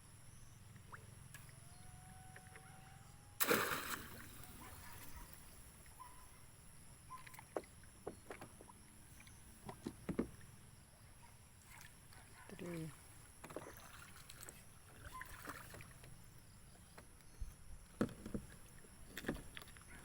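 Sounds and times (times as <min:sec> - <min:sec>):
fish trap splashing into water: 0:03.4 - 0:04.9
water sounds: 0:03.4 - 0:06.1.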